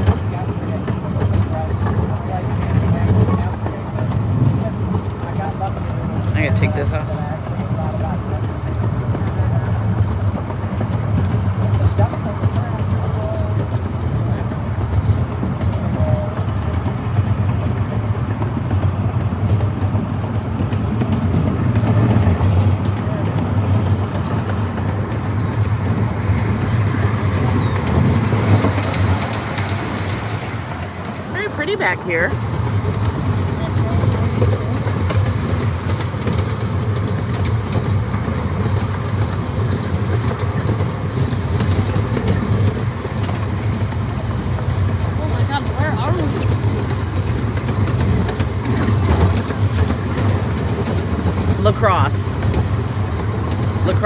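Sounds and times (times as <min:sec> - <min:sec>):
miniature train rumbling on track: 0:00.0 - 0:54.0
wheels clicking on rails: 0:00.0 - 0:54.0.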